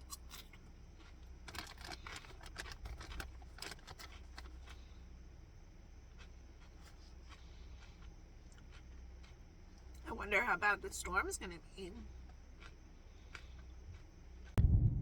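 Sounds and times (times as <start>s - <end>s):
faint crinkling: 0.6s - 5.1s.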